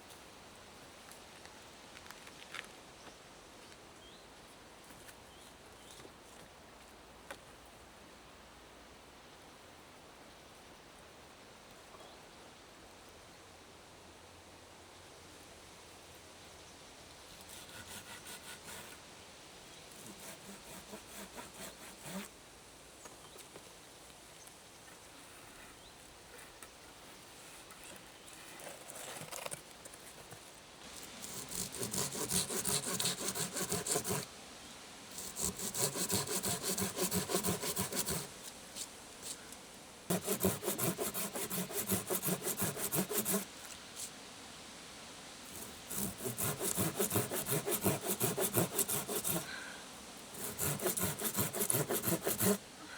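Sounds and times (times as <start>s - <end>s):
hand saw cutting wood: 17.5s - 19.0s, 19.9s - 22.3s, 31.2s - 34.3s, 35.1s - 38.4s, 40.1s - 43.5s, 45.5s - 49.5s, 50.3s - 52.6s.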